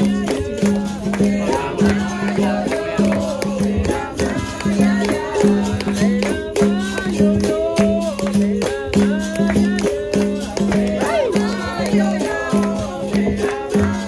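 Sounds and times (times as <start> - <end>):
hand percussion: 0.0 - 14.0
people singing: 0.0 - 14.0.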